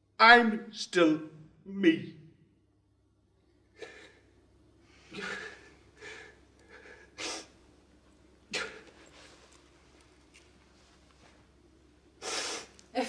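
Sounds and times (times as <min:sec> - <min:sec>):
person sniffing: 0:06.7 - 0:07.6, 0:12.2 - 0:12.8
person breathing sharply: 0:12.2 - 0:12.8.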